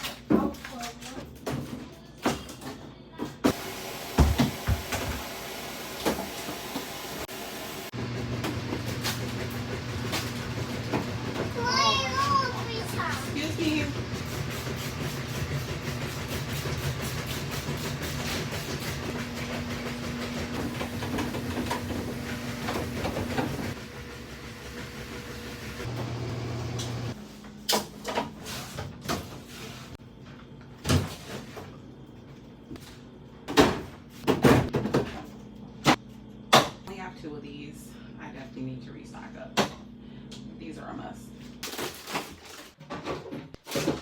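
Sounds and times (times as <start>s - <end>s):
food containers knocking and clattering: 13.1s - 23.8s.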